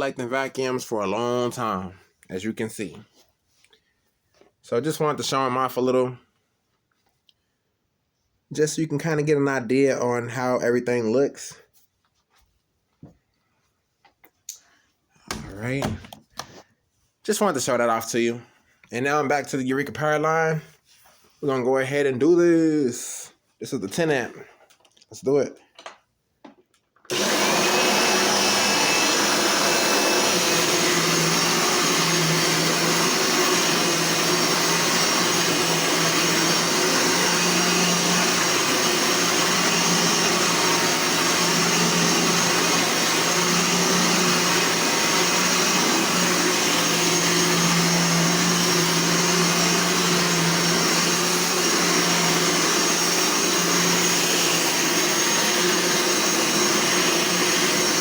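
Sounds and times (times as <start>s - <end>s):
upright vacuum cleaner running: 27.1s - 58.0s.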